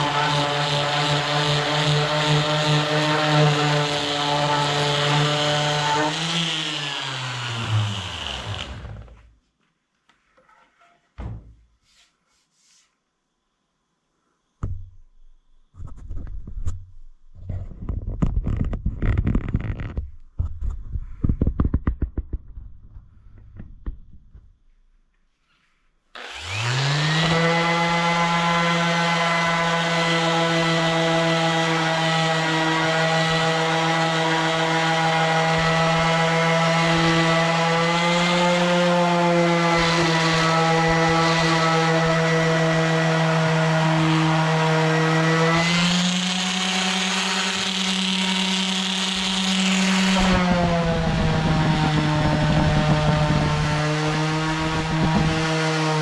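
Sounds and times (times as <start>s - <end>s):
electric woodworking machine running: 0.0s - 9.2s, 26.2s - 56.0s
scraping and knocking on wood: 15.8s - 24.4s.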